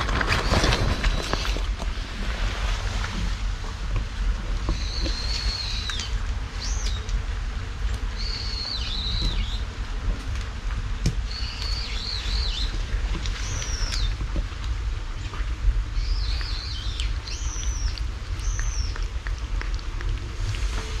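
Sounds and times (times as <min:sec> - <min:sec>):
low rumble: 0:00.0 - 0:21.0
small bird whistling: 0:04.7 - 0:07.1, 0:08.2 - 0:09.6, 0:11.3 - 0:12.7, 0:13.4 - 0:14.1, 0:16.0 - 0:19.0.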